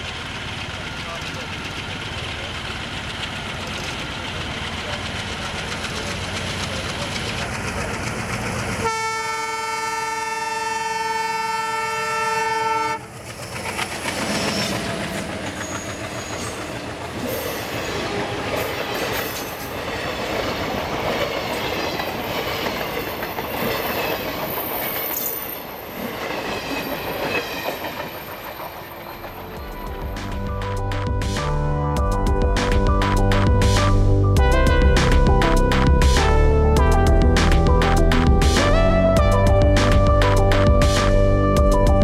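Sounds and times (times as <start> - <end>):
train wheels clattering: 0.0 - 8.9, 13.0 - 31.0
locomotive horn blast: 8.8 - 13.1, 33.6 - 41.6.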